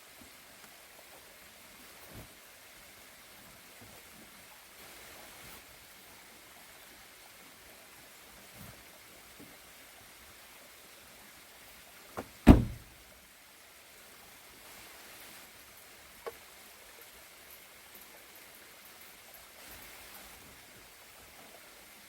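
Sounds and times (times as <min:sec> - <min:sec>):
steady quiet hiss: 0:00.0 - 0:22.0
heavy thump with low ring: 0:12.2 - 0:12.9.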